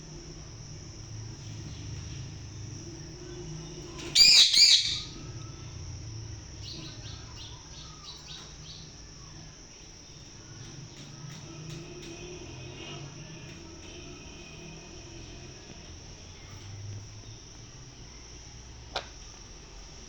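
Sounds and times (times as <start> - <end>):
crickets chirring: 0.0 - 20.0
parrot chirping: 4.1 - 5.2.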